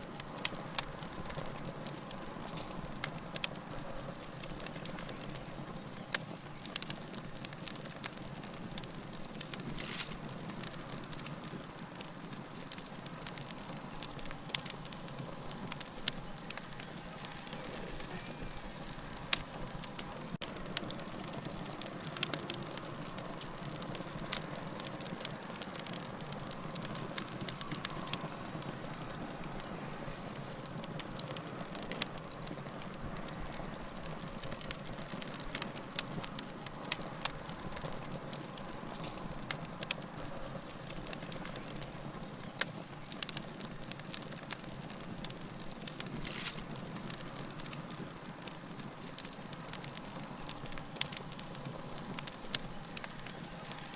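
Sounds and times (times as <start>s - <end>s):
soft fire hiss: 0.0s - 53.9s
wood fire crackling and popping: 0.0s - 53.9s.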